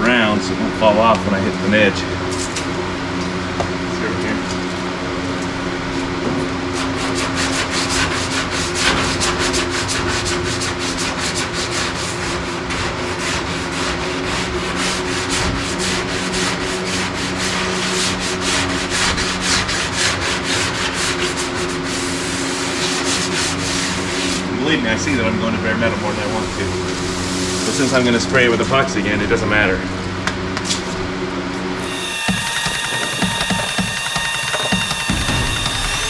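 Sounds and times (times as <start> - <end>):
sandpaper rasping on car body: 6.7 - 24.5, 31.8 - 36.0.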